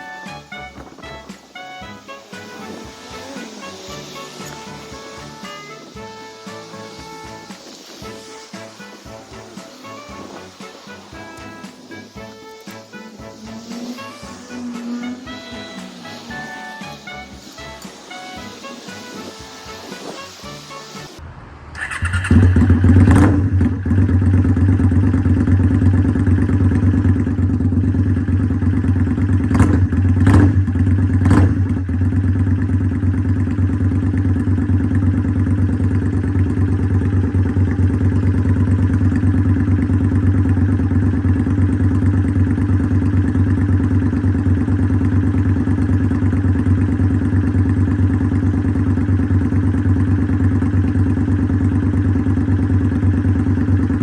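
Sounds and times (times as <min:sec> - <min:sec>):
motorcycle engine idling: 0:21.8 - 0:54.0.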